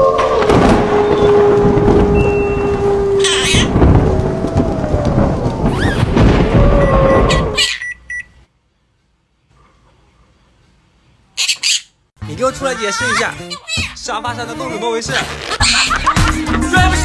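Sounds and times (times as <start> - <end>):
thunder-like rumble: 0.0 - 7.6
rain: 1.6 - 7.3.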